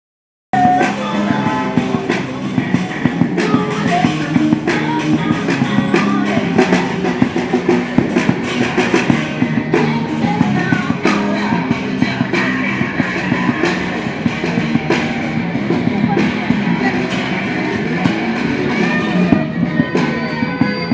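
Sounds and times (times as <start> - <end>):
drum kit beat: 0.5 - 20.9
electric guitar: 0.6 - 20.9
person singing: 0.6 - 20.9.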